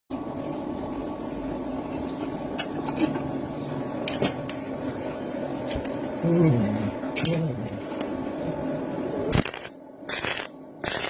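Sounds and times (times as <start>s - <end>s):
welding arc crackling: 9.3s - 11.0s.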